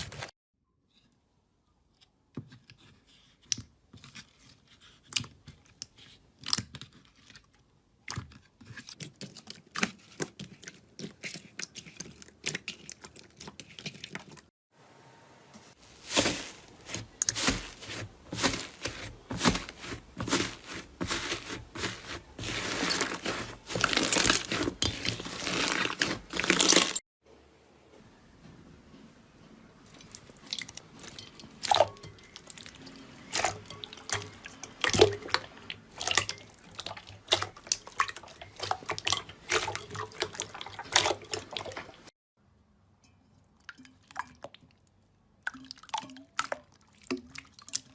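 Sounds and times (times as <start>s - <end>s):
slime squeezed crackling: 15.9s - 27.0s.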